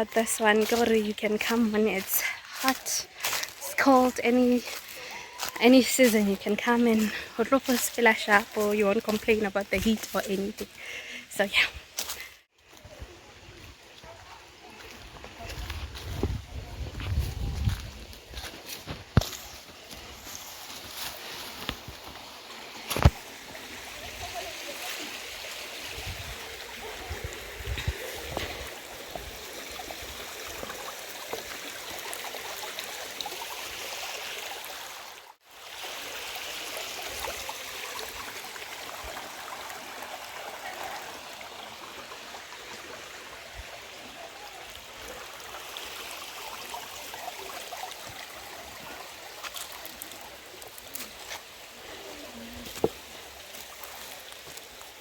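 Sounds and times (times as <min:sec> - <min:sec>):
stream running: 0:00.0 - 0:55.0.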